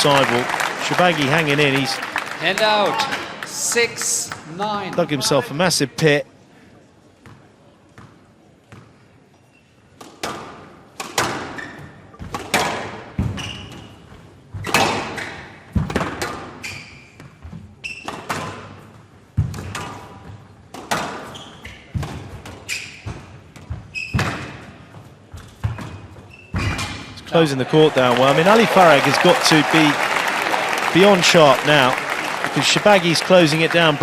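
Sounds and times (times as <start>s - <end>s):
squash ball hits: 10.0s - 11.6s, 12.2s - 13.5s, 14.6s - 16.6s, 19.4s - 21.3s, 21.9s - 24.7s
shoe squeaks on court: 11.5s - 12.1s, 13.4s - 15.4s, 16.6s - 18.4s, 21.2s - 24.7s, 25.3s - 27.1s.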